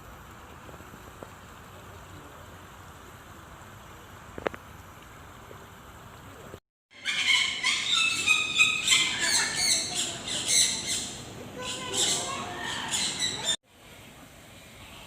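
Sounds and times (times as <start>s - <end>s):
birds squawking: 7.0s - 13.6s.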